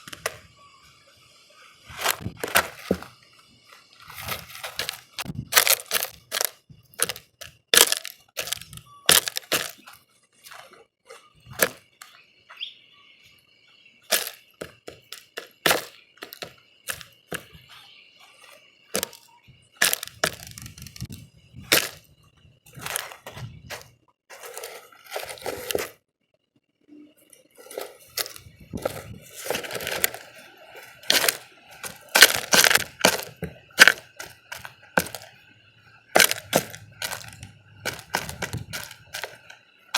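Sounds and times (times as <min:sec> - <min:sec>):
birds pecking at a feeder: 0:27.6 - 0:35.4, 0:36.2 - 0:39.5.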